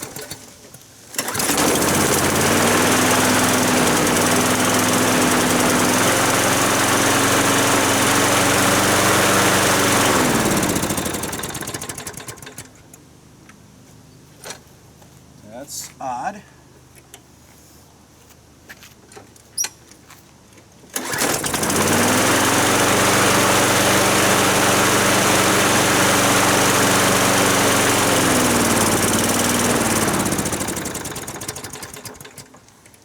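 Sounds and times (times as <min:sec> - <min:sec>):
lawn mower engine running: 0:00.0 - 0:13.0, 0:20.9 - 0:33.0.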